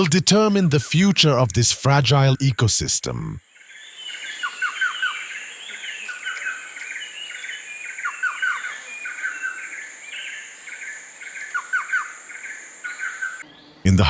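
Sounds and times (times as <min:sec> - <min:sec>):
birds chirping: 0:00.0 - 0:14.0
insect drone: 0:03.4 - 0:13.7.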